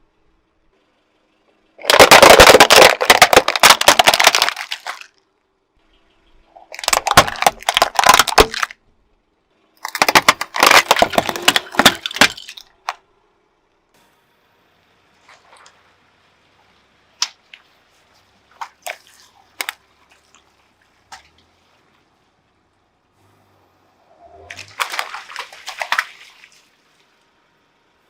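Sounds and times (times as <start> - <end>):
brittle objects crushed under tyre: 1.8 - 5.2, 6.6 - 8.8, 9.8 - 13.0.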